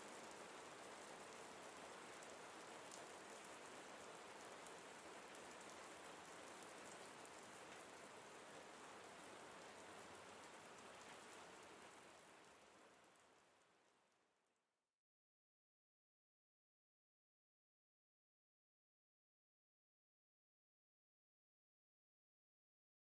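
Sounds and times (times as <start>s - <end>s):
small raindrop ticks: 0.0s - 14.3s
faint steady rain: 0.0s - 14.8s.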